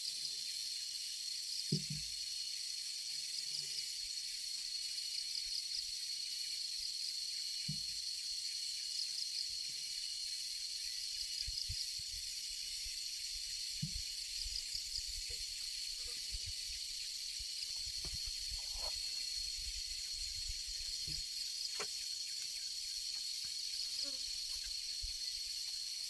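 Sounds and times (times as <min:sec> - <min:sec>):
insects droning: 0:00.0 - 0:26.0
faint low knocks and thuds: 0:13.8 - 0:15.5, 0:17.7 - 0:19.2, 0:20.3 - 0:21.9.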